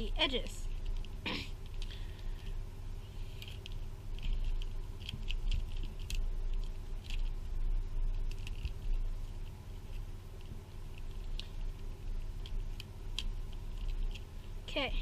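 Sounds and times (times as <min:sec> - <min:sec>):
plastic puzzle clicking and rattling: 0:03.4 - 0:07.3.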